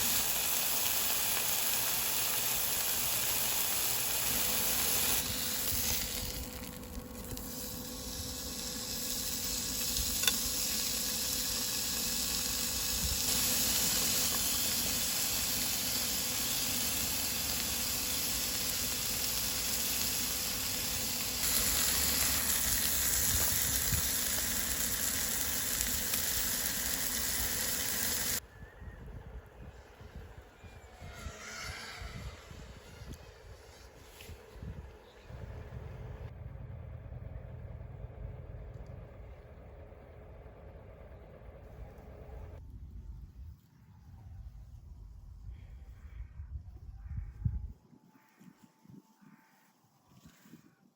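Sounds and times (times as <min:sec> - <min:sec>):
food sizzling as it fries: 0:00.0 - 0:28.4.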